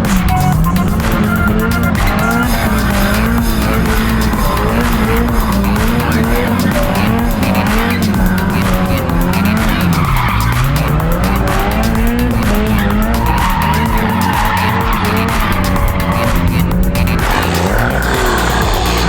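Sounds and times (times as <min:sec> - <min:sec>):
car engine revving: 0:00.0 - 0:19.0
tires skidding on pavement: 0:00.0 - 0:19.0.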